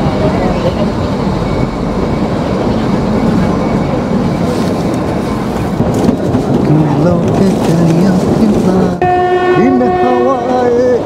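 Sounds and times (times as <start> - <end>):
train wheels rumbling and rattling: 0.0 - 11.0.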